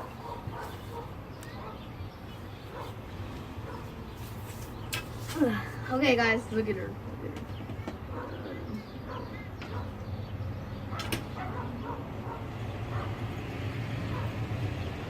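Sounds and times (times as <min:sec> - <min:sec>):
dog barking: 0:00.0 - 0:01.9, 0:02.7 - 0:03.0, 0:03.6 - 0:04.0, 0:08.1 - 0:10.0, 0:10.9 - 0:13.2, 0:14.1 - 0:14.4.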